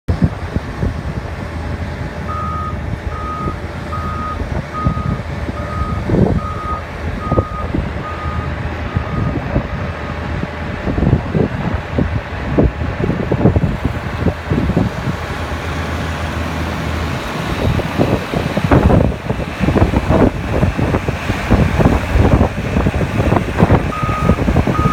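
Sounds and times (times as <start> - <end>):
loader engine running: 0.1 - 24.9
reversing alarm beeping: 2.3 - 9.4, 23.9 - 24.9.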